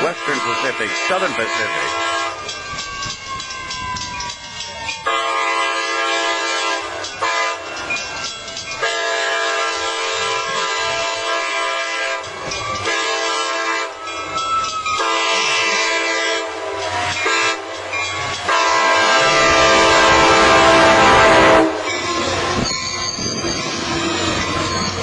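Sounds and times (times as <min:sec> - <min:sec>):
train horn blasts: 0:00.0 - 0:02.5, 0:05.0 - 0:07.7, 0:08.8 - 0:14.0, 0:15.0 - 0:17.6, 0:18.4 - 0:21.9
train approaching rumble: 0:00.0 - 0:25.0.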